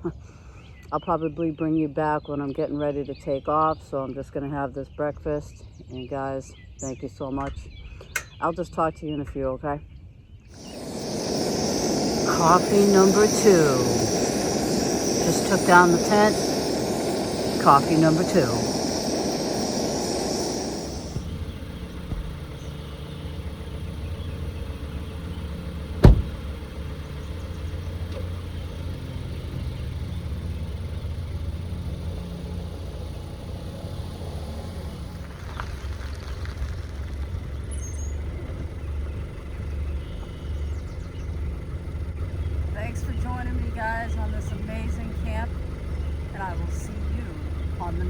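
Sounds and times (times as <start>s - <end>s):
hiss: 10.6s - 37.3s
low rumble: 10.6s - 48.0s
sharp knock: 26.0s - 26.4s.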